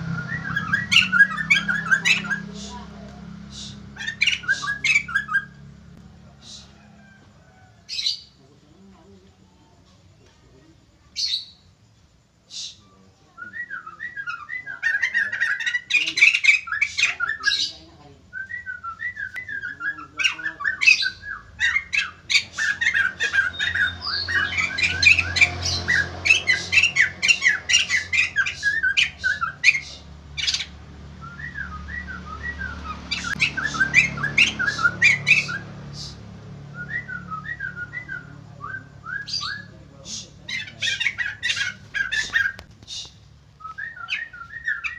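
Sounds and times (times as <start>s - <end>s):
laughingthrush chattering and squawking: 0.0s - 6.8s, 13.9s - 18.2s, 19.4s - 31.2s, 32.3s - 36.7s, 39.2s - 43.4s.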